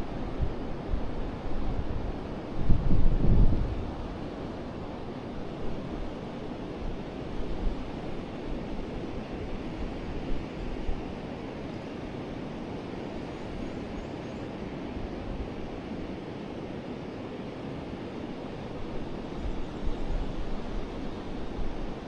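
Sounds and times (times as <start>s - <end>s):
wind buffeting microphone: 0.0s - 4.7s.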